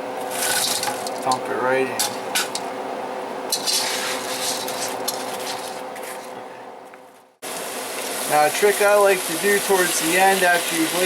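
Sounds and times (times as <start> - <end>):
utensil scraping in a pan: 3.5 - 6.3
sizzling hiss: 7.4 - 11.0.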